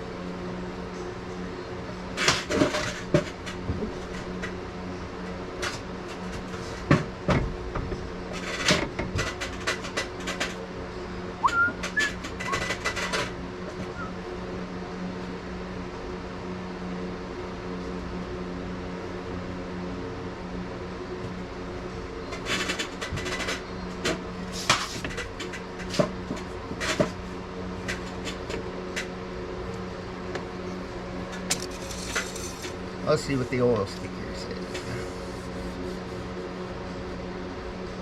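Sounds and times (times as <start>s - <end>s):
low mechanical hum: 0.0s - 38.0s
clicks and rattles of handling: 7.8s - 10.6s, 11.4s - 14.0s, 22.4s - 27.2s
brief high squeaks: 11.4s - 12.8s, 13.8s - 14.2s.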